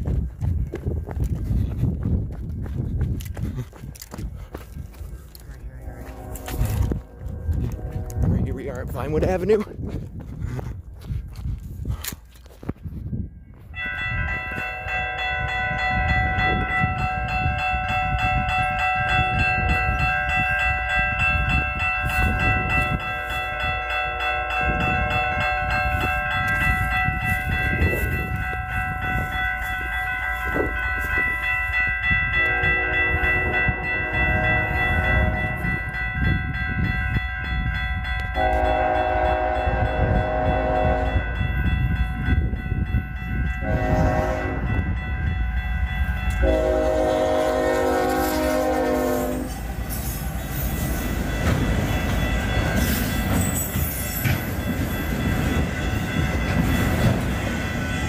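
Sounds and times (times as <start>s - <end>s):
train rumbling over rails: 0.0s - 12.0s, 13.0s - 58.0s
locomotive horn blasts: 5.8s - 8.4s, 32.3s - 35.6s, 38.3s - 41.4s, 43.6s - 44.8s, 46.3s - 49.6s
crossing bells ringing: 13.3s - 58.0s.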